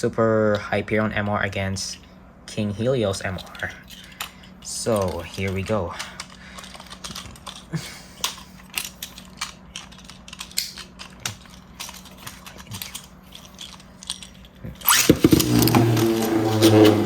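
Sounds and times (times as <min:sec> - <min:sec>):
plastic clicks and rattles: 0:03.4 - 0:16.1
fast rising whir of spinning top: 0:14.8 - 0:17.0.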